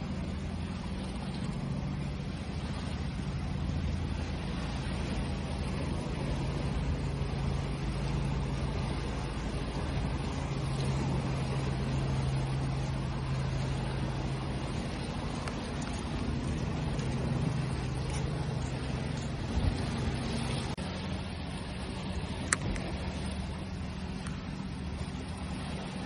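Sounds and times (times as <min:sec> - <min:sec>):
low engine hum: 0:00.0 - 0:26.0
ocean waves rushing: 0:00.0 - 0:26.0.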